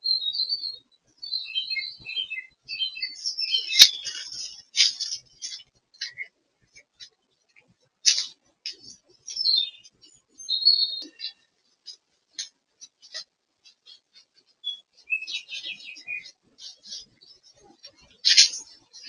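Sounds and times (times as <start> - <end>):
whistled bird notes: 0.0 - 6.3, 8.1 - 11.4, 14.6 - 19.0
birds chirping: 0.0 - 19.0.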